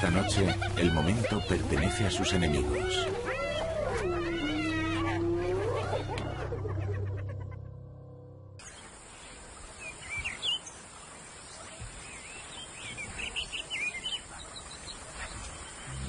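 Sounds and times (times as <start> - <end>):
steady background hiss: 0.0 - 3.5
small birds chirping: 0.0 - 7.6, 8.6 - 16.0.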